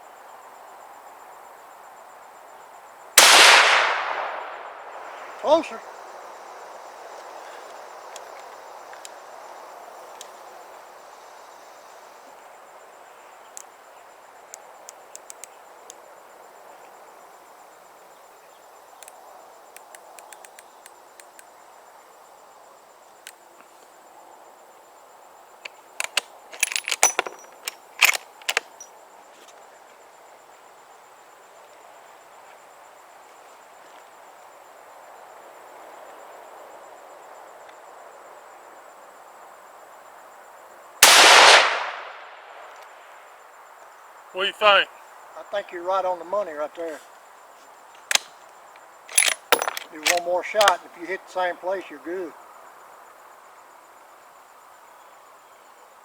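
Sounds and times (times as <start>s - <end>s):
steady background hiss: 0.0s - 56.0s
light metal clicks and clinks: 26.0s - 28.9s, 49.1s - 50.8s.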